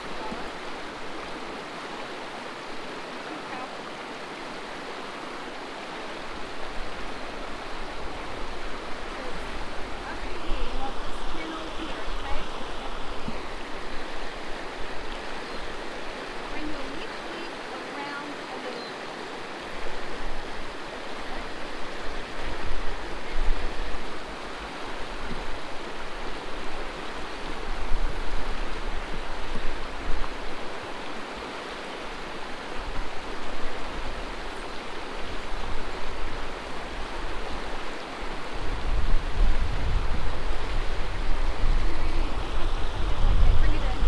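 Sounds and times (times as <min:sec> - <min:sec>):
river water rushing: 0:00.0 - 0:44.0
wind buffeting microphone: 0:35.2 - 0:44.0.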